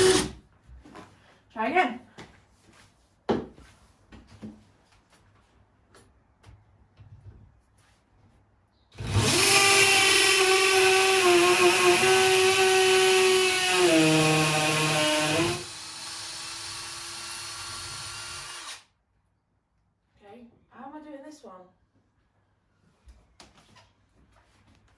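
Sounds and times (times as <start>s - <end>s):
power drill boring a hole: 0.0s - 0.3s, 9.0s - 18.8s.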